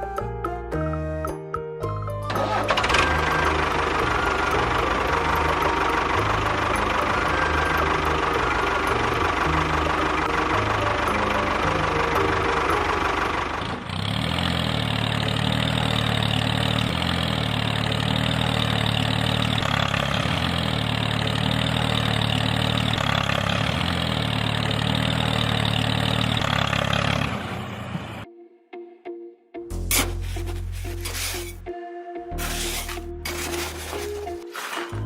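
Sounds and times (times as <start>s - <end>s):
engine idling: 2.2s - 28.2s.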